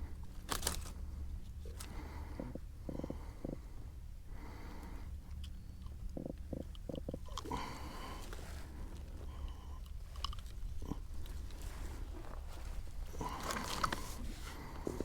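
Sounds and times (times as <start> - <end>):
fish croaking in low grunts: 2.1 - 3.8, 6.1 - 8.3.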